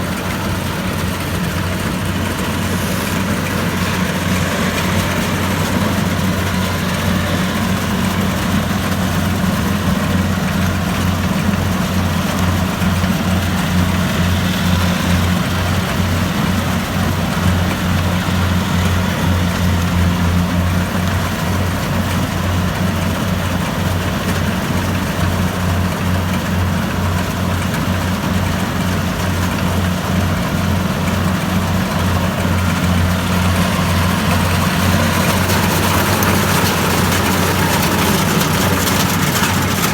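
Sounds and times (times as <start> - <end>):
machinery rushing noise: 0.0 - 11.6, 30.9 - 39.9
diesel engine drone: 0.0 - 39.9.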